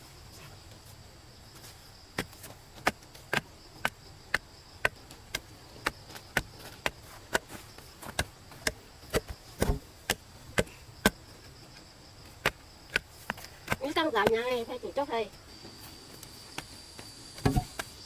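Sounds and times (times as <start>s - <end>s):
blade chopping wood: 2.2s - 11.3s, 12.3s - 14.6s, 17.4s - 18.0s.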